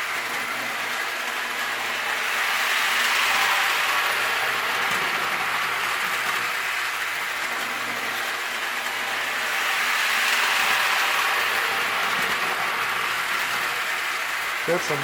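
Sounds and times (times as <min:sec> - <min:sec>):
toy train electric motor whir: 0:00.0 - 0:15.0.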